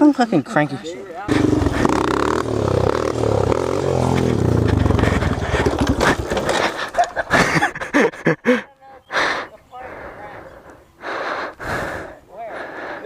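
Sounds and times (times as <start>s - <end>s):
dirt bike engine revving: 1.2s - 7.6s
rough gusty noise: 1.3s - 7.9s.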